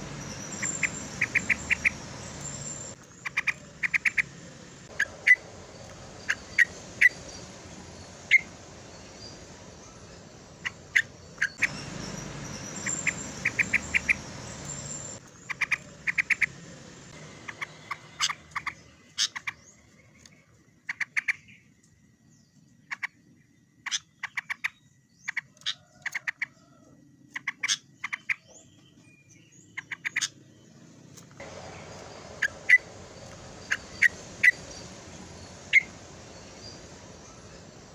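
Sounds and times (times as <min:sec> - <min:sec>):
bulbul chirping calls: 0:00.0 - 0:16.7, 0:17.4 - 0:19.9, 0:31.4 - 0:37.9.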